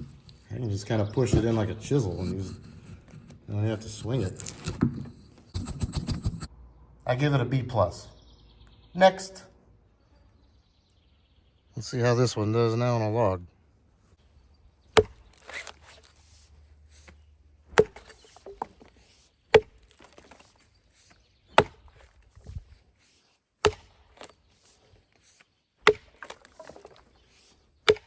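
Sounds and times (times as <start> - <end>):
axe chopping into log: 15.0 - 15.8, 17.7 - 18.9, 19.5 - 20.6, 21.5 - 22.7, 23.6 - 24.4, 25.8 - 27.0.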